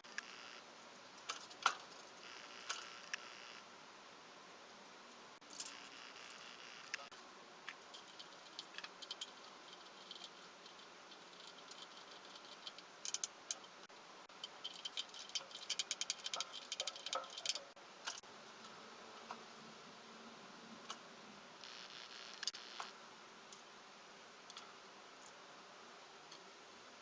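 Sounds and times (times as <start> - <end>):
metal tools clicking and clinking: 7.8 - 13.8, 14.4 - 18.2.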